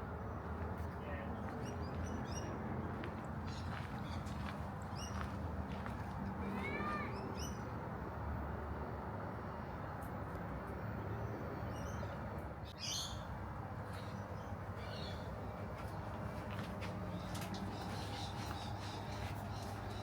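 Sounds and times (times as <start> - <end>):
birds calling: 1.4 - 7.8, 11.7 - 20.0.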